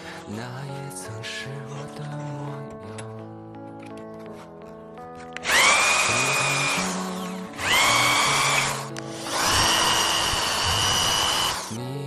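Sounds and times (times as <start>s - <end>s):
background music: 0.0s - 12.0s
power tool whining: 5.4s - 11.8s.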